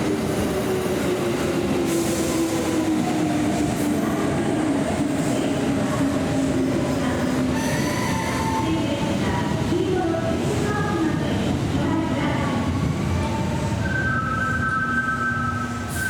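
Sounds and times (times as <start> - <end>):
electric train rumbling: 0.0 - 16.0
train wheels squealing: 7.6 - 8.6, 13.7 - 16.0.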